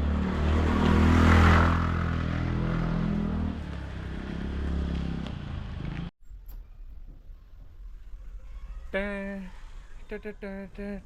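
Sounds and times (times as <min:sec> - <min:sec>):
engine running close by: 0:00.0 - 0:06.1
vehicle passing: 0:00.0 - 0:06.1.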